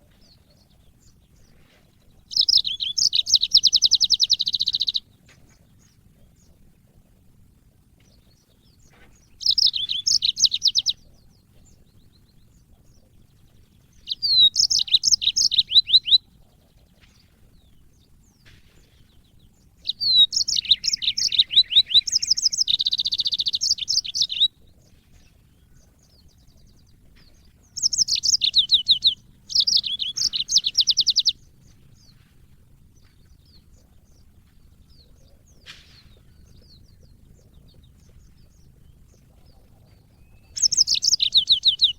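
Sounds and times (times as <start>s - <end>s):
canary singing: 0.0s - 41.9s.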